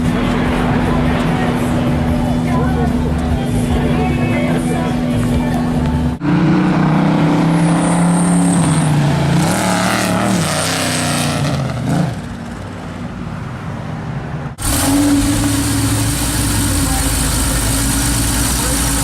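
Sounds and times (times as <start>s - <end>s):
sports car engine running: 0.0s - 6.2s, 14.6s - 19.0s.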